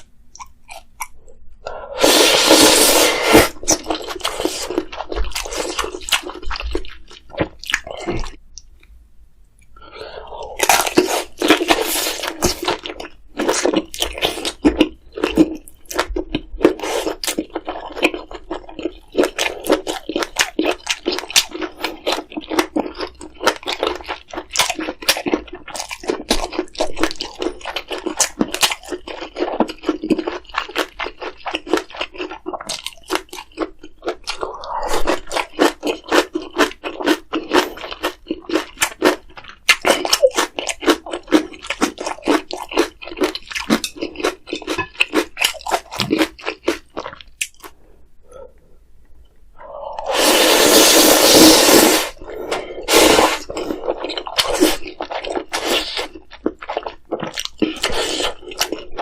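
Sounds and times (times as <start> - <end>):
person chewing and biting: 0.0 - 1.2, 2.0 - 8.7, 10.4 - 47.8, 50.0 - 59.0.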